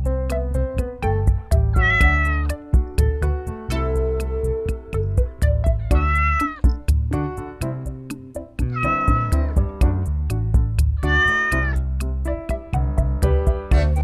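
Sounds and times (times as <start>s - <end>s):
background music with beat: 0.0s - 14.0s
cat meowing: 1.7s - 2.6s, 5.8s - 6.7s, 8.7s - 9.5s, 11.0s - 11.8s.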